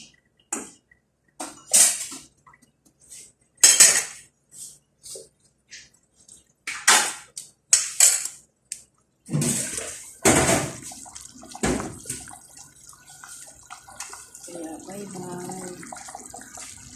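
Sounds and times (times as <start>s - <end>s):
water pouring and sloshing: 8.9s - 16.9s
water trickling: 8.9s - 16.9s
water splashing: 9.3s - 16.9s.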